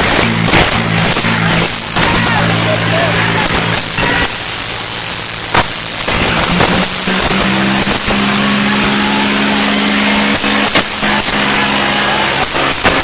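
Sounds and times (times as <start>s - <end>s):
tractor engine running hard: 0.0s - 13.0s.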